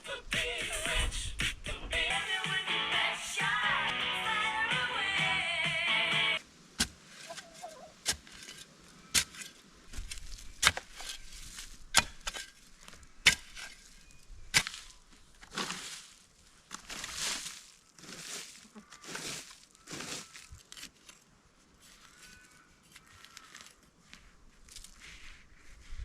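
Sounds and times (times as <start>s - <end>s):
rustling of plants being pulled: 6.8s - 26.0s.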